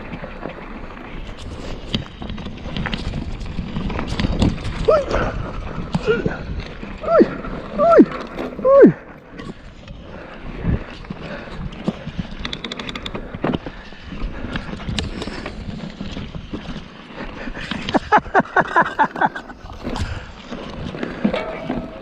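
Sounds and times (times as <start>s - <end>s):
mountain bike rolling over rocks: 0.0s - 22.0s
bike frame clattering: 21.2s - 22.0s.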